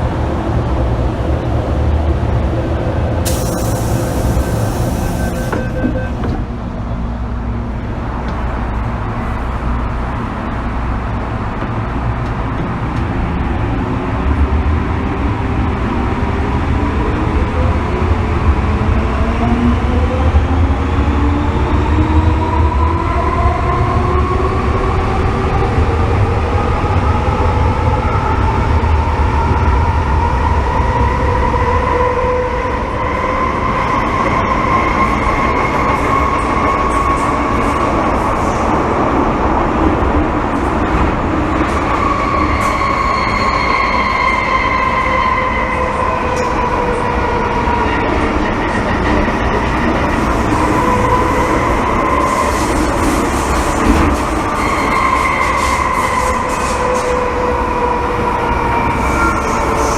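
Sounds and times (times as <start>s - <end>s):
train wheels rumbling on track: 0.0s - 59.9s
electric traction motors whining: 3.2s - 6.5s.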